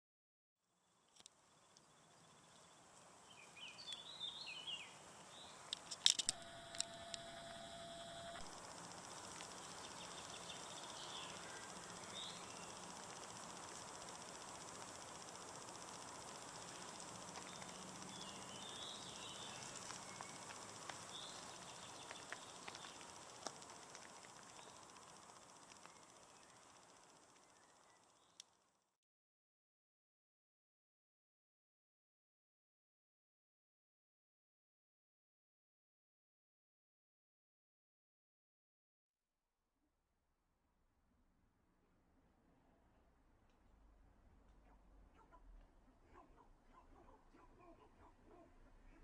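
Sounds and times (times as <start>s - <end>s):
sharp clicks: 1.1s - 28.5s
insects trilling: 1.2s - 28.4s
steady high hum: 1.2s - 28.4s
bird chirping: 1.4s - 28.4s.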